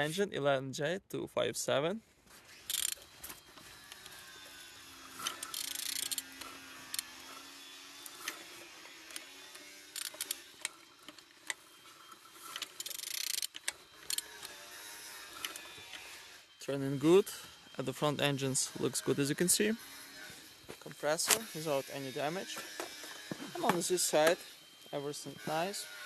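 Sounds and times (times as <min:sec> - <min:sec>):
metallic scraping: 0:02.3 - 0:26.0
wrench ratchet clicks: 0:02.7 - 0:03.0, 0:05.2 - 0:07.4, 0:09.0 - 0:11.6, 0:12.4 - 0:14.6.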